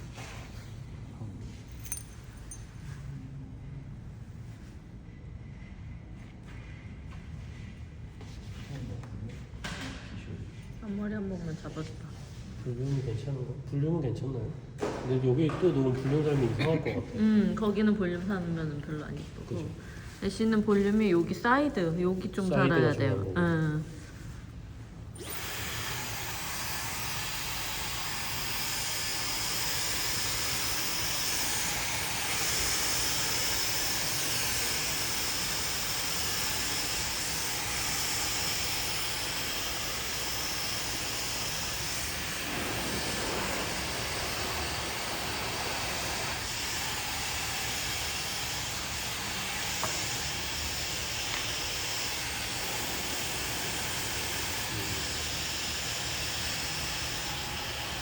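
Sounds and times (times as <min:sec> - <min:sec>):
hair dryer blowing: 0:14.8 - 0:24.3, 0:25.1 - 0:58.0.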